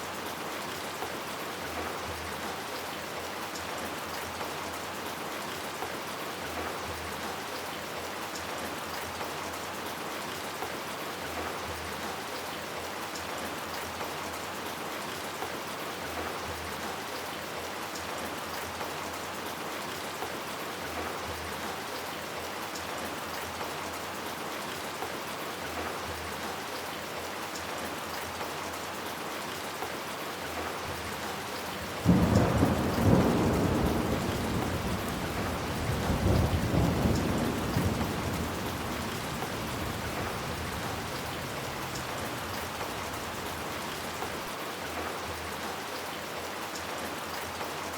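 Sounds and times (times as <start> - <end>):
steady rain: 0.0 - 47.9
thunder clap and rumble: 32.0 - 44.2.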